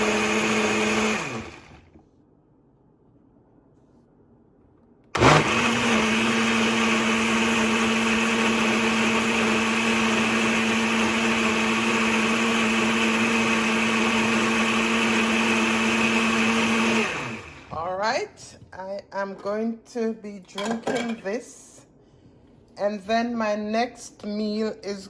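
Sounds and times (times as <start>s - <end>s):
blender motor running: 0.0s - 2.0s, 5.2s - 17.8s.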